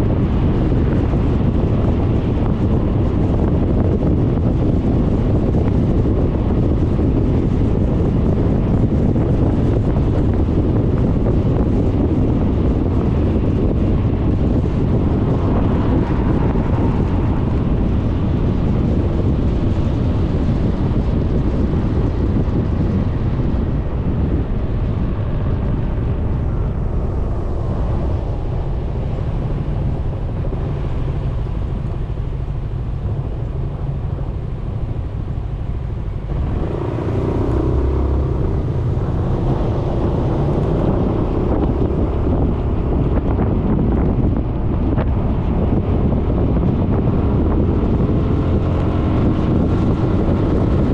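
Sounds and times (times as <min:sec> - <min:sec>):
road noise: 0:00.0 - 0:50.9
wind buffeting microphone: 0:00.0 - 0:50.9
scooter engine: 0:32.4 - 0:42.5.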